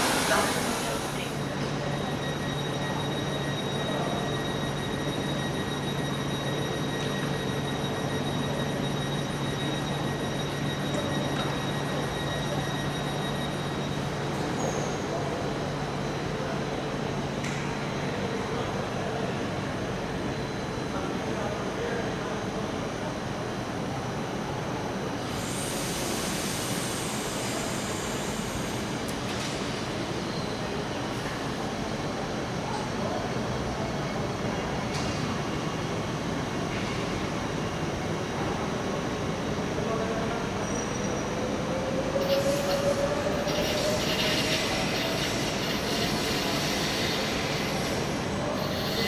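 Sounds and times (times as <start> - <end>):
train running noise: 0.0 - 19.0, 25.2 - 49.0
train ventilation whirring: 41.3 - 49.0.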